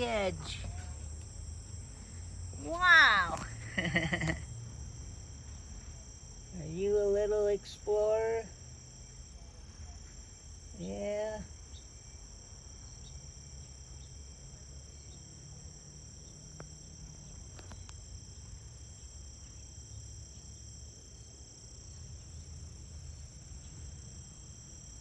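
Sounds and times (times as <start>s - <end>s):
low outdoor rumble: 0.0s - 10.1s
insects trilling: 0.0s - 25.0s.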